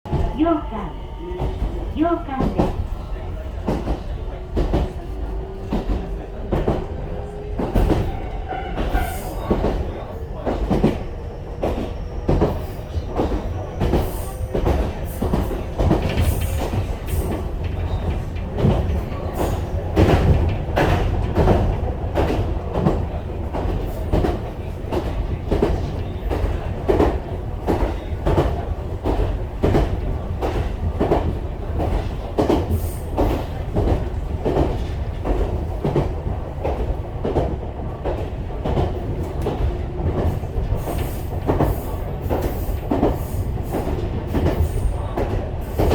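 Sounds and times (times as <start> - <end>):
train rumble: 0.0 - 45.9.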